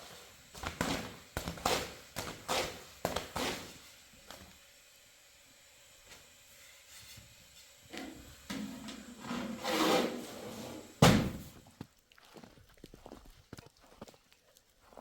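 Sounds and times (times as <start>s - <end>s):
scraping and rubbing: 6.6s - 11.0s.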